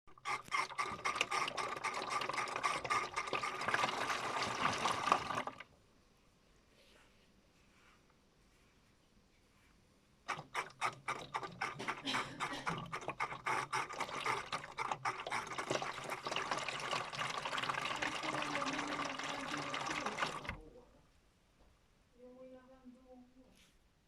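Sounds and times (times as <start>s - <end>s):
water spurting into toy washing machine: 0.1s - 5.7s, 10.3s - 20.7s.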